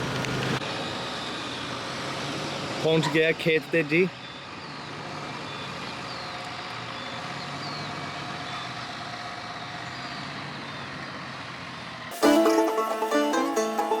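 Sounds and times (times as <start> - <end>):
banjo music: 12.1 - 14.0.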